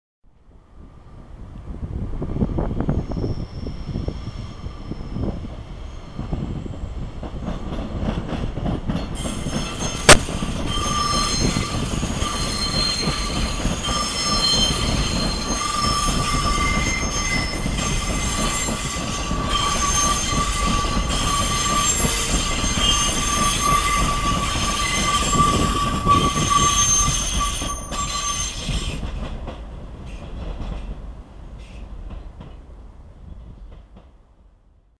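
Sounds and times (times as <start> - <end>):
train rumbling over rails: 0.4 - 34.9
sharp crack: 10.1 - 10.4.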